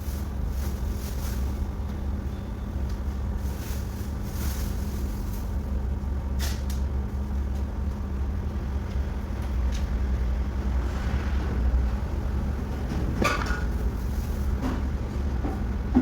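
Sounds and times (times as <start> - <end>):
low motor hum: 7.2 - 16.0.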